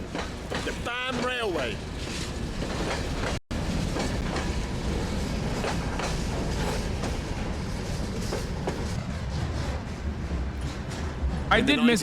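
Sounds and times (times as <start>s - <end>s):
wheels clicking over rail joints: 0.0s - 4.6s
train wheels rumbling on rails: 0.0s - 12.0s.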